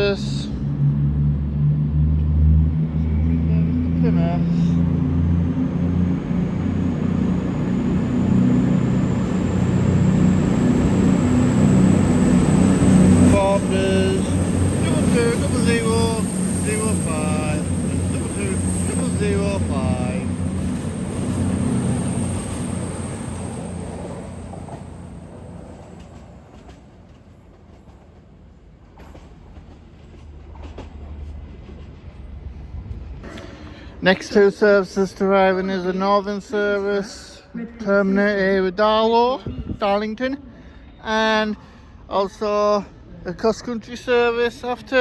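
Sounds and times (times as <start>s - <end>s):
diesel engines droning: 0.0s - 27.5s
high whine rising in pitch: 0.5s - 26.0s.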